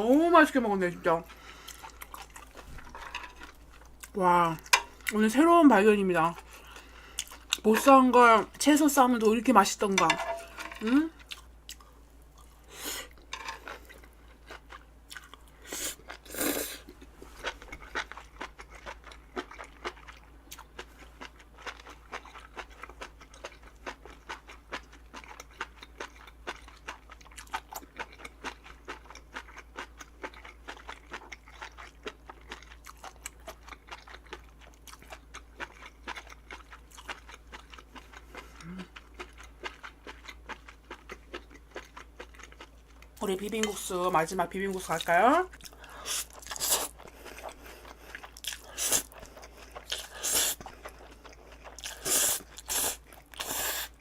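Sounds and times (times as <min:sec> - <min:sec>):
close chewing with wet crunches: 0:16.9 - 0:43.2, 0:45.6 - 0:54.0.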